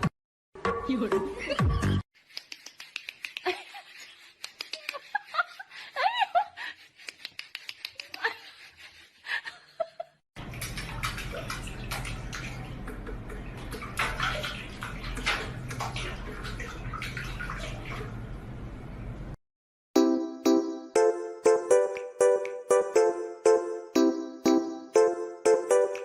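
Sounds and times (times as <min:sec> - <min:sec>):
water splashes: 0:10.4 - 0:18.5.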